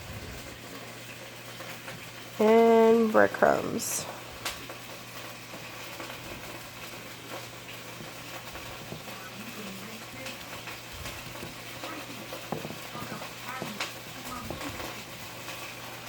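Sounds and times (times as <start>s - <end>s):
steak sizzling in a skillet: 4.0s - 16.0s.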